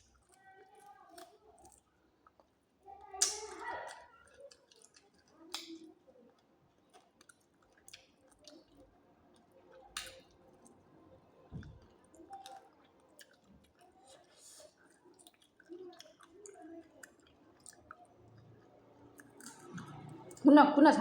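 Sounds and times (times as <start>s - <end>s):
person chewing: 0.0s - 10.9s, 11.6s - 20.4s.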